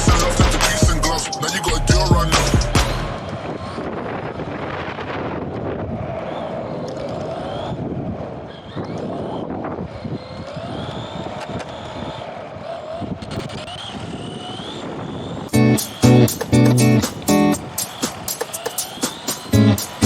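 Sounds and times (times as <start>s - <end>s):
music: 0.0s - 3.2s, 15.5s - 20.0s
electric motor whining: 6.4s - 20.0s.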